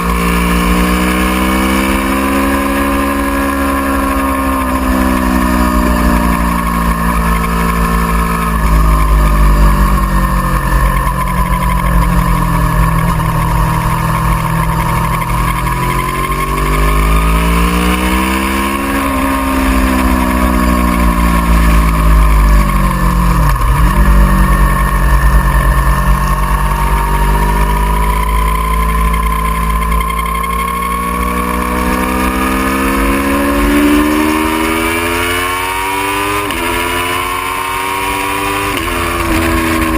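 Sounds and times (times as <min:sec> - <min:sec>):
motorcycle engine running: 0:00.0 - 0:39.9
low wind rumble: 0:04.1 - 0:31.6.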